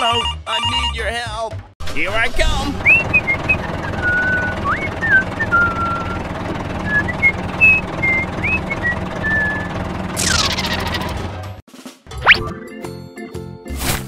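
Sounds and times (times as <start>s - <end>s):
low engine hum: 1.8s - 11.6s
person whistling a tune: 2.8s - 6.2s, 6.8s - 9.7s.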